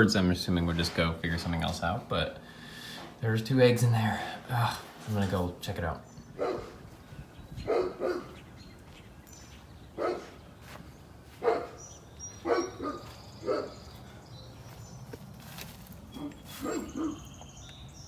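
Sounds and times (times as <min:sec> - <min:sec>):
dog barking: 0:06.4 - 0:06.8, 0:07.6 - 0:08.4, 0:10.0 - 0:10.4, 0:11.4 - 0:11.8, 0:12.4 - 0:13.8, 0:16.2 - 0:17.3.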